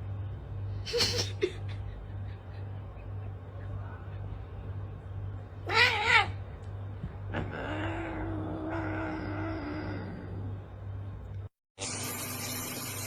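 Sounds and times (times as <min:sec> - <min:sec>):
steady low hum: 0:00.0 - 0:11.5
cat meowing: 0:05.6 - 0:06.4
cat yowling: 0:05.6 - 0:06.4, 0:07.3 - 0:10.4.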